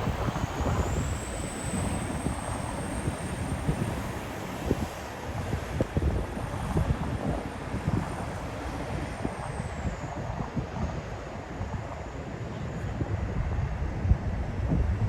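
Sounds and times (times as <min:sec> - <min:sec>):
jet airliner engine whine: 0:00.0 - 0:15.0
wind buffeting microphone: 0:00.0 - 0:15.0.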